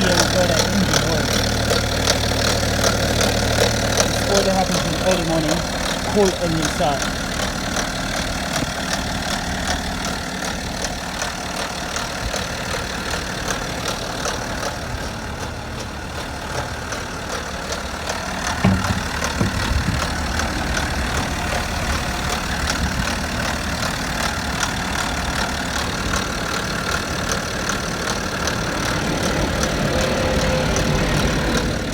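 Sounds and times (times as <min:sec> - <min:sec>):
diesel engine idling: 0:00.0 - 0:31.9
rapid regular knocking: 0:15.8 - 0:21.8.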